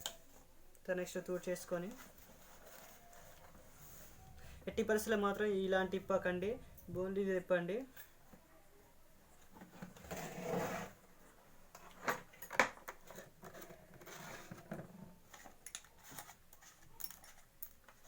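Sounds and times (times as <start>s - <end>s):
metal scrape: 9.8s - 11.0s.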